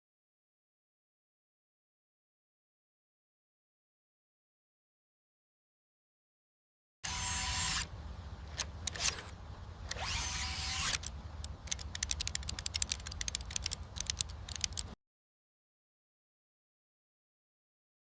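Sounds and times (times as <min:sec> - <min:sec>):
mechanical whirring: 0:07.0 - 0:15.0
low hum: 0:07.1 - 0:15.0
sharp ratchet clicks: 0:08.6 - 0:09.3, 0:09.9 - 0:15.0.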